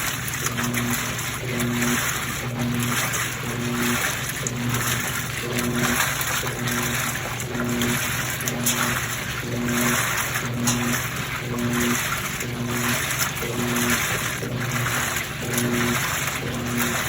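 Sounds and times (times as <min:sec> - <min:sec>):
washing machine motor humming: 0:00.0 - 0:17.0
water sloshing in drum: 0:00.0 - 0:17.0.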